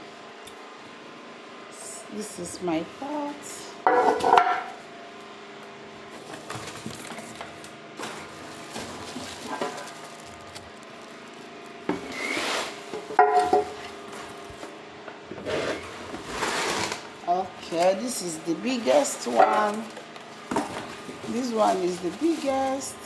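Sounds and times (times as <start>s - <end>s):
cooking pots knocking and rubbing: 3.9s - 4.7s, 12.9s - 13.8s.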